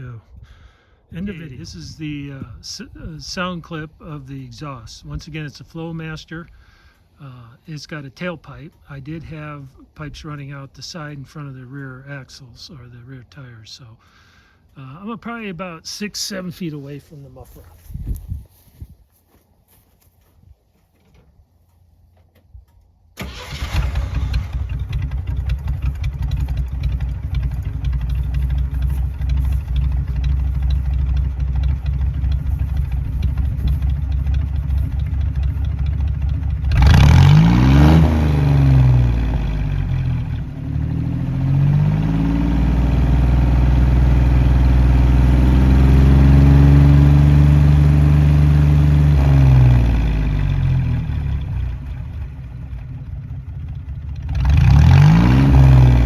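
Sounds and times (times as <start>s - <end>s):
engine starting: 23.2s - 26.8s
engine idling and revving: 23.2s - 56.0s.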